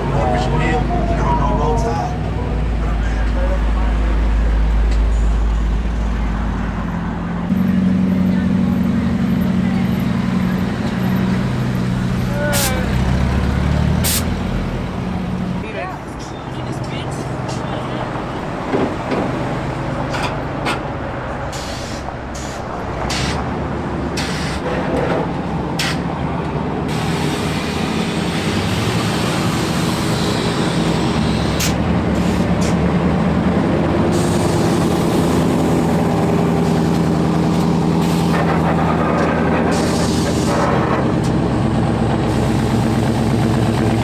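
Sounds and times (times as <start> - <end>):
vehicle engine running: 0.0 - 15.6, 23.1 - 44.0
short sharp clicks or hisses: 14.1 - 14.3.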